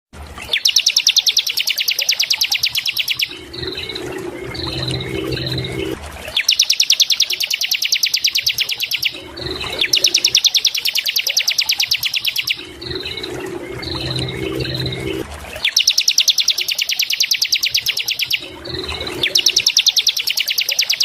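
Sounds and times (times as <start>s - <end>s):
bird rapid high trills: 0.4s - 21.0s
lower steady sound: 2.9s - 6.2s, 12.2s - 15.5s.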